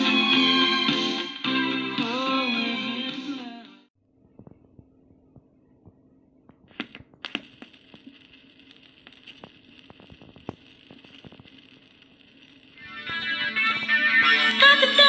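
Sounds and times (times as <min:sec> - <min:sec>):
vinyl record crackle and pops: 0:04.1 - 0:15.0
record clicks: 0:04.2 - 0:14.2
steady hiss: 0:06.7 - 0:15.0.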